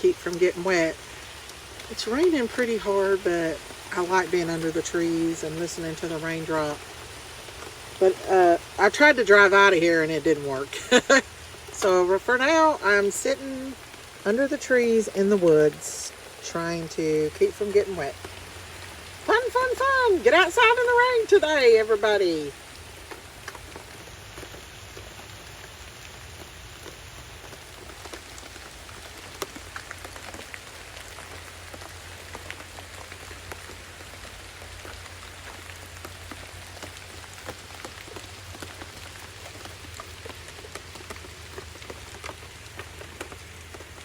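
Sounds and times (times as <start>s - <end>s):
drops ticking on leaves: 0.0s - 44.0s
heavy rain through trees: 0.0s - 44.0s.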